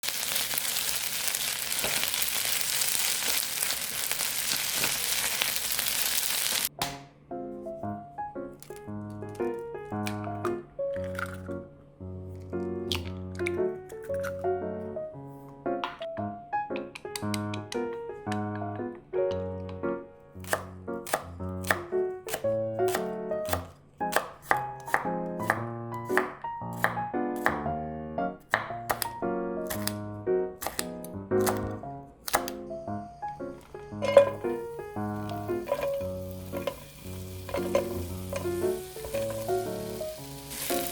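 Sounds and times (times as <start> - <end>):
food sizzling in hot oil: 0.0 - 6.7, 33.7 - 40.9
background music: 6.7 - 40.9
knife chopping on cutting board: 20.4 - 27.6, 28.5 - 30.0, 30.6 - 32.6, 37.4 - 39.9.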